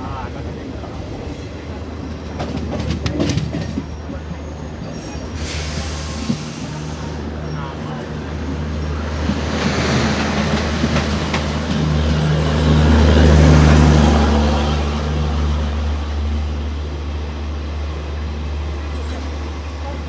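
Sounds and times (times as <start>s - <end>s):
train rumbling past: 0.0s - 20.0s
wheels clicking over rail joints: 2.2s - 4.2s.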